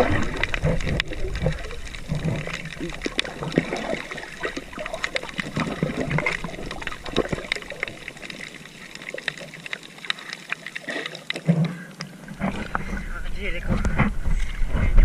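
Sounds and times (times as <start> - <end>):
water trickling and splashing: 0.0 - 15.0.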